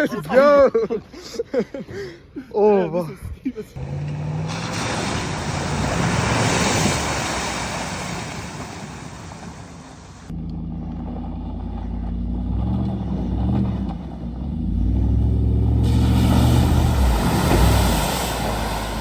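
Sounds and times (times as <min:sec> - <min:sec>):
truck engine revving: 0:03.8 - 0:19.0
hiss of noise: 0:04.8 - 0:10.3, 0:15.8 - 0:19.0.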